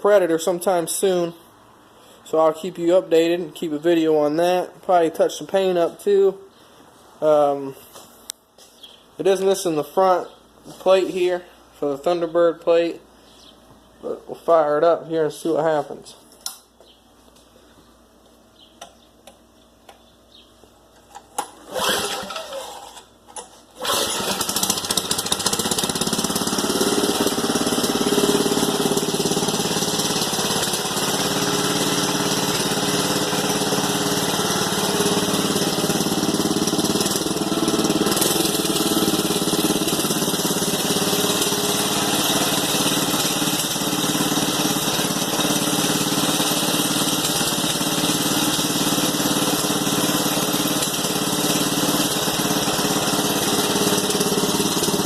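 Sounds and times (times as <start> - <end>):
small engine starting and running: 21.1 - 55.0.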